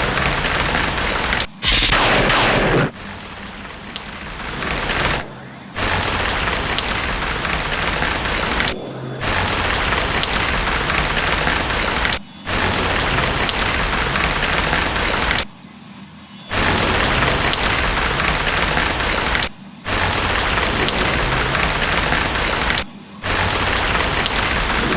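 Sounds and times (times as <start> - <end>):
thunderclap: 0.0 - 15.0, 16.5 - 24.9
heavy rain: 0.0 - 15.4, 16.5 - 24.9.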